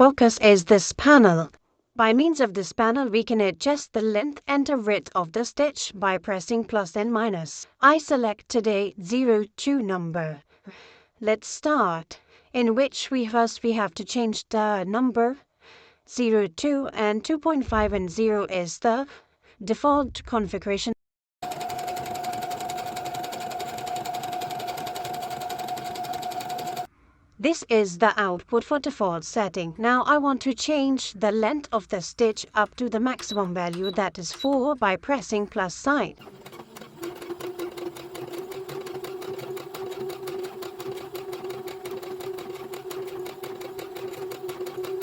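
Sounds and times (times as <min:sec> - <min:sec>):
sewing machine running: 0:21.4 - 0:26.9, 0:36.2 - 0:45.0.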